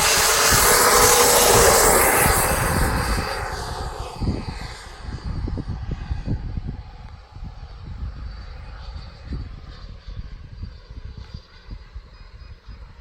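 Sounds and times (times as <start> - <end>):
model jet passing: 0.0 - 13.0
wind thumps on microphone: 0.0 - 13.0.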